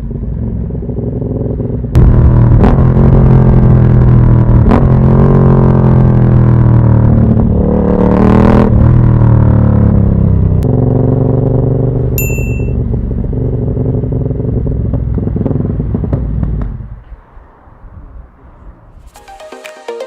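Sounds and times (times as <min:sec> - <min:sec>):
motorcycle engine revving: 0:00.0 - 0:17.0
short high beep: 0:12.2 - 0:12.8.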